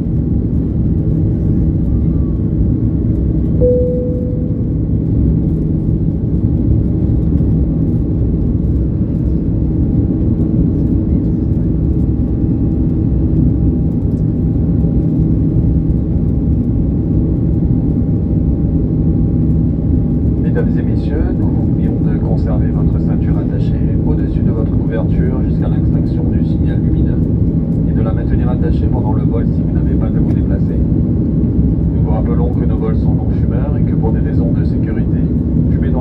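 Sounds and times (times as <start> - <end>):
aircraft cabin engine rumble: 0.0 - 36.0
short tone: 3.6 - 5.1.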